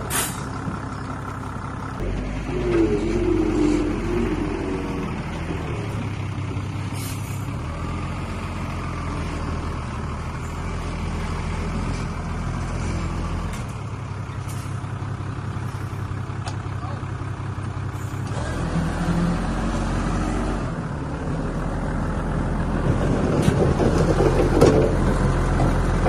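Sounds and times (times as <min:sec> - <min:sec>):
diesel construction machine running: 0:00.0 - 0:26.0
wavering squeal: 0:02.3 - 0:05.4.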